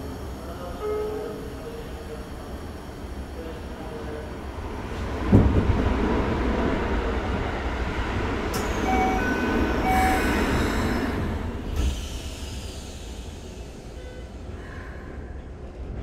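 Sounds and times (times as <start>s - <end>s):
train rushing past: 4.5s - 15.2s.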